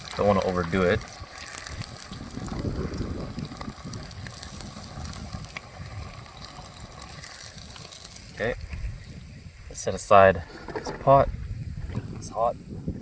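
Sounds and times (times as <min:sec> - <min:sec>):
chips frying in hot oil: 0:00.0 - 0:09.5.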